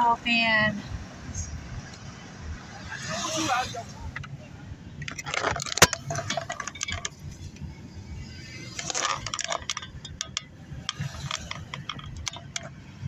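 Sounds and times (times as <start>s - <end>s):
road rumble: 0.0s - 13.0s
clicks and clinks rattling: 5.0s - 7.4s, 8.7s - 12.8s.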